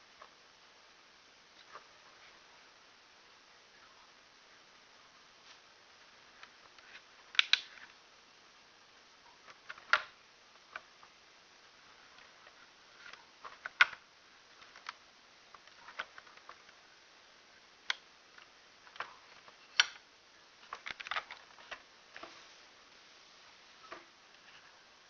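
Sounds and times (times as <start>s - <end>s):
model car clicks and taps: 7.3s - 7.7s.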